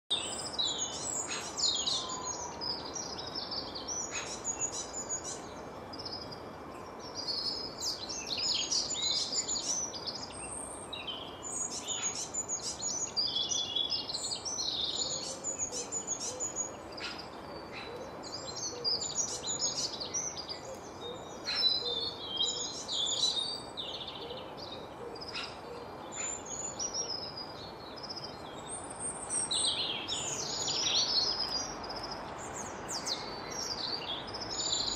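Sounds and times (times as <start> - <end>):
small birds chirping: 0.1 - 34.9.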